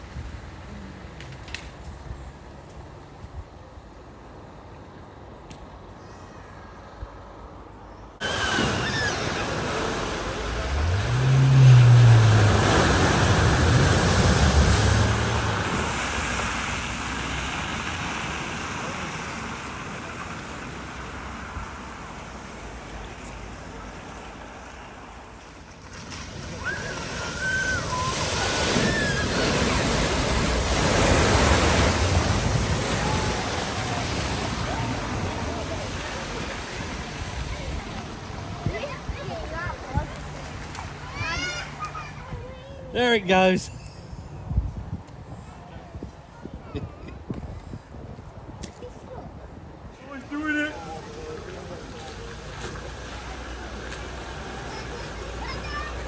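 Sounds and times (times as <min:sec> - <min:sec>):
vehicle engine: 0:08.2 - 0:25.2, 0:50.9 - 0:56.0
water rushing and splashing: 0:08.2 - 0:42.2, 0:49.7 - 0:56.0.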